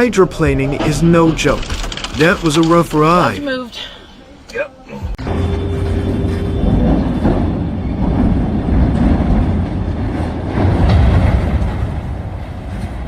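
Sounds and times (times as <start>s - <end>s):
vehicle low rumble: 5.2s - 13.0s.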